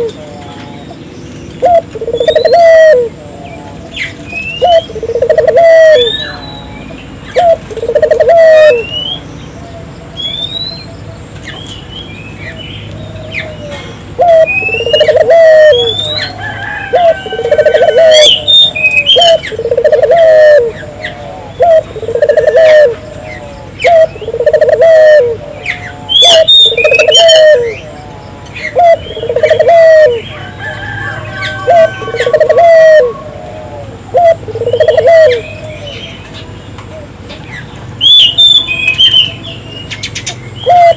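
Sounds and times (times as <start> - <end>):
dove cooing: 0.0 - 0.3, 1.6 - 3.8, 4.6 - 6.4, 7.3 - 8.9, 13.2 - 36.1, 40.6 - 40.9
small birds chirping: 0.0 - 16.4, 17.2 - 30.5, 34.0 - 40.9.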